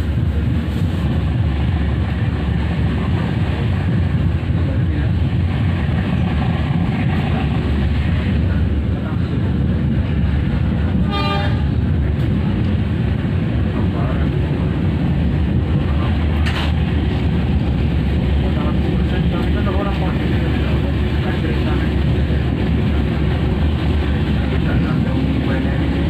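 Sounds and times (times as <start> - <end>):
train rumbling on track: 0.0 - 26.0
train horn toot: 11.0 - 11.8.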